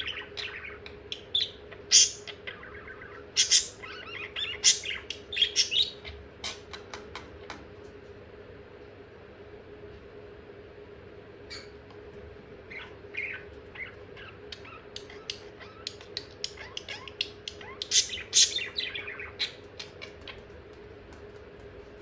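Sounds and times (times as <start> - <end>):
budgerigar squawks: 0.0 - 6.1, 16.6 - 20.1
budgerigar chattering: 0.0 - 6.2, 12.7 - 20.2.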